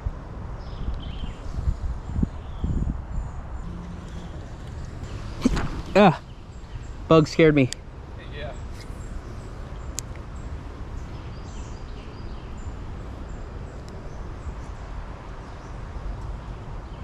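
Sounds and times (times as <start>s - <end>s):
wind rumble on microphone: 0.0s - 7.1s.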